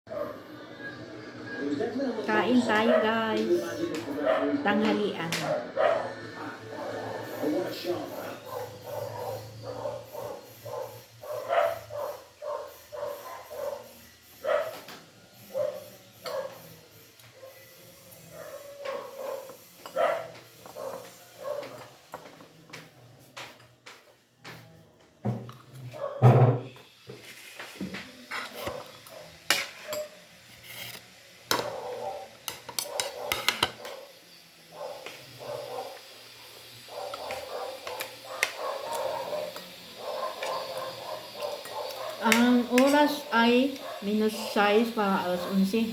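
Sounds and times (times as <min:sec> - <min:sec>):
dog barking: 0:00.1 - 0:00.5, 0:02.6 - 0:07.0, 0:07.9 - 0:21.9, 0:25.9 - 0:26.7, 0:28.5 - 0:30.2, 0:31.5 - 0:44.6, 0:45.2 - 0:45.8
cutlery and dishes clinking: 0:18.9 - 0:23.8, 0:27.9 - 0:34.1, 0:37.0 - 0:43.2.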